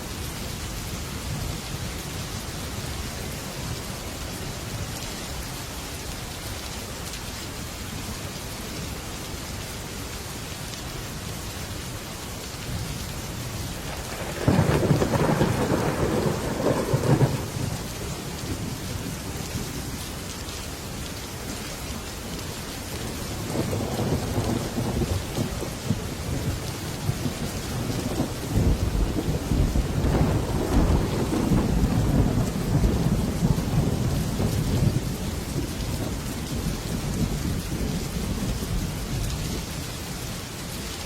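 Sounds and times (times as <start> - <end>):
heavy rain on a metal roof: 0.0 - 41.0
thunder rumbling: 13.8 - 19.5, 23.4 - 39.2.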